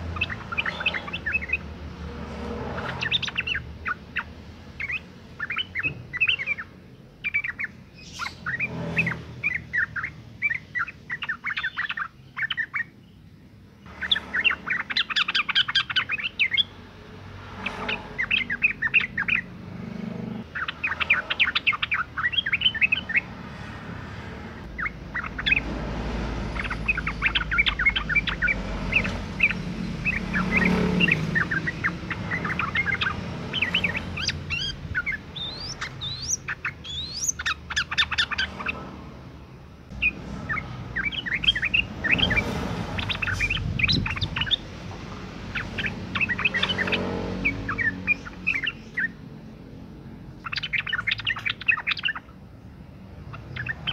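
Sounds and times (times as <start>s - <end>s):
bulbul chirping call: 26.6s - 38.8s.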